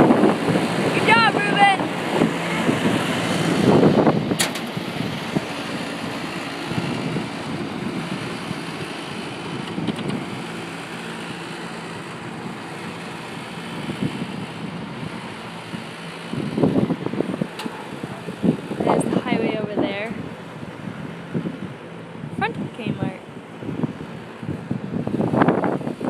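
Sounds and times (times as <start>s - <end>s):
hvac equipment humming: 0.0s - 26.0s.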